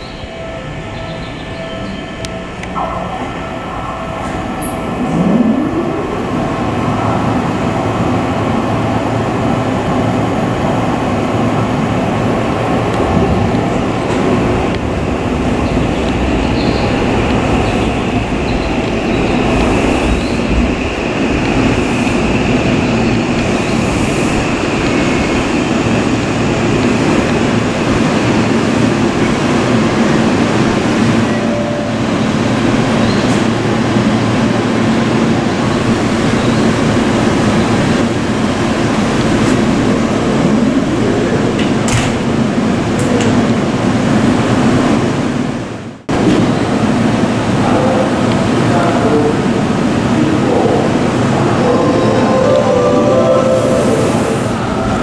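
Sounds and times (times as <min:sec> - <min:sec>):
train wheels on rails: 0:00.0 - 0:31.4, 0:32.0 - 0:55.0
electric train braking to a stop: 0:51.2 - 0:55.0.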